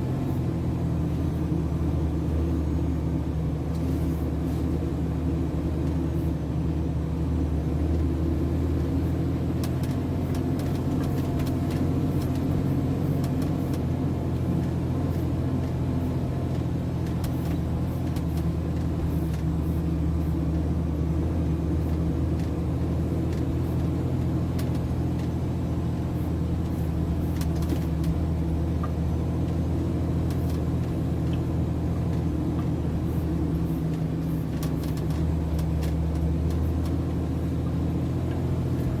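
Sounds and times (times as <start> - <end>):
truck diesel engine running: 0.0 - 39.0.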